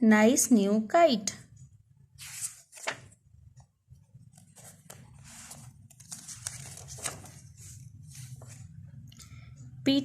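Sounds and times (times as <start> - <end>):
paper rustling: 2.2 - 3.2, 4.2 - 8.7.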